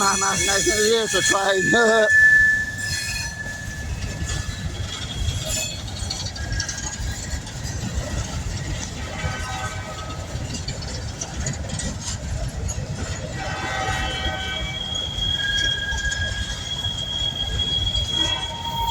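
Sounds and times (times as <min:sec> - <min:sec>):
freight train rumbling on rails: 0:00.0 - 0:18.9.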